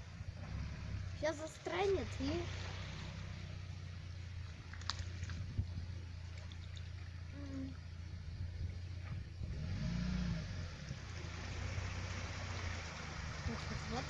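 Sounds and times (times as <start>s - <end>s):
off-road engine labouring: 0.0s - 14.0s.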